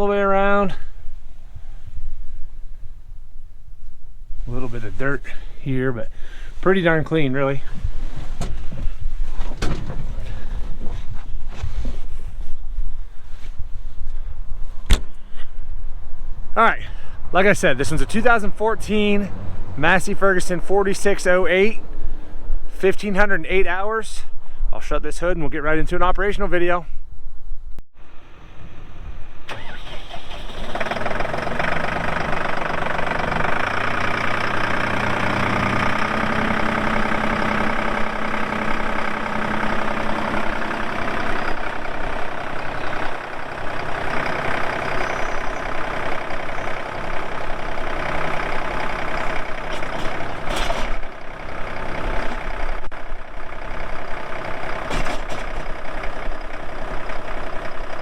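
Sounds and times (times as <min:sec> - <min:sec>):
tractor diesel engine starting: 0:04.5 - 0:11.1, 0:17.3 - 0:20.5, 0:28.0 - 0:58.0.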